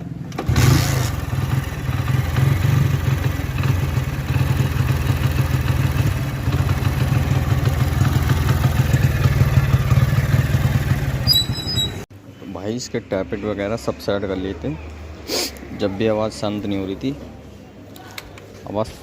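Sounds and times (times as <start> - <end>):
motorcycle engine idling: 0.9 - 12.0.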